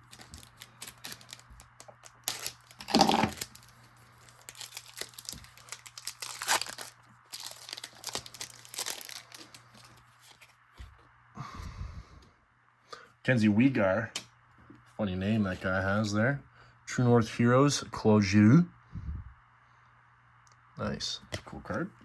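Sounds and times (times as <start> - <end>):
wrapper crinkling: 0.0 - 10.5
wrapper tearing open: 0.0 - 10.5.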